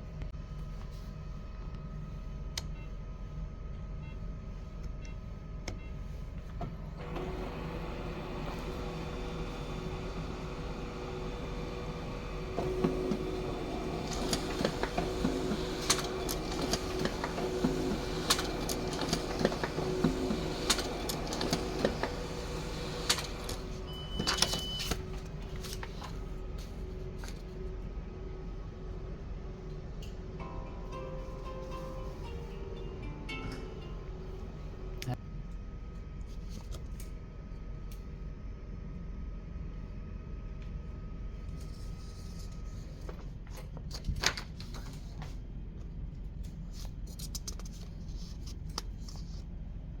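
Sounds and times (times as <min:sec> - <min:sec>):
printer motors humming: 0:04.0 - 0:30.5
printer clicks feeding page: 0:07.0 - 0:25.9.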